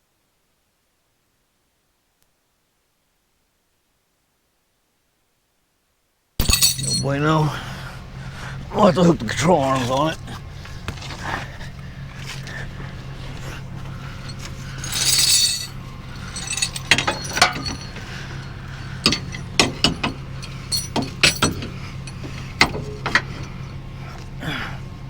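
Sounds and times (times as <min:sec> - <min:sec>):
tow chain and hooks clinking: 0:06.4 - 0:07.7, 0:08.8 - 0:24.6
steady low hum: 0:06.4 - 0:25.0.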